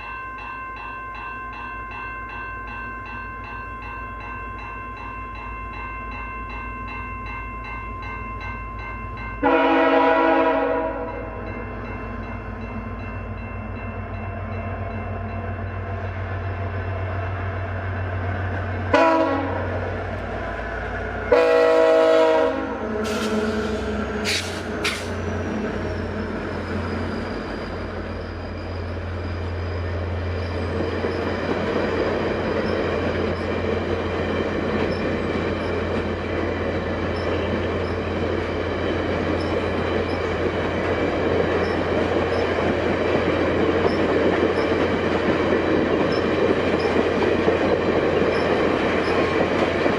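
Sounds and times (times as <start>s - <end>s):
diesel locomotive engines: 0.0s - 49.9s
train wheels rumbling on rails: 2.3s - 49.9s
train horn blasts: 9.4s - 11.4s, 18.9s - 19.8s, 21.3s - 24.5s.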